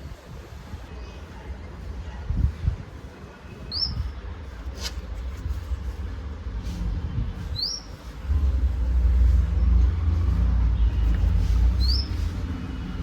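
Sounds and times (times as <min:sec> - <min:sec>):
steady low rumble: 0:04.2 - 0:13.0
high upward-sweeping chirps: 0:11.7 - 0:12.3.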